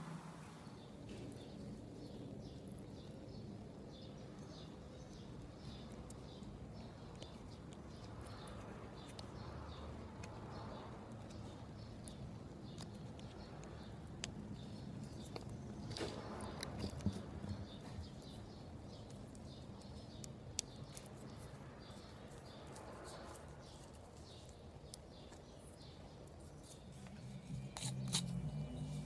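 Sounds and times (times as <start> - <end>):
faint bird chirping: 0.0 - 29.0
low steady hum: 21.3 - 29.0.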